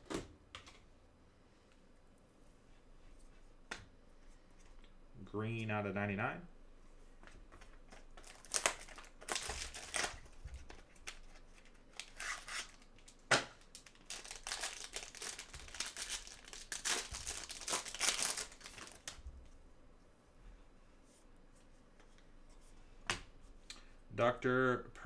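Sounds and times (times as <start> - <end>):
plastic packaging crinkling and tearing: 7.9 - 19.2.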